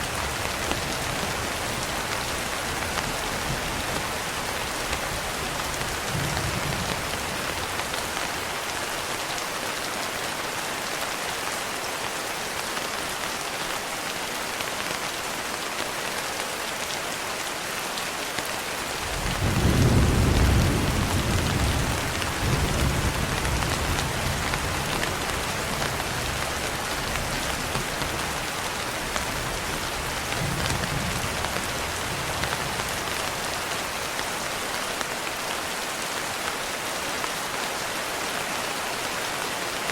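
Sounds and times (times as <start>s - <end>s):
rain on a window: 0.0s - 39.9s
thunder rumbling: 19.1s - 26.4s.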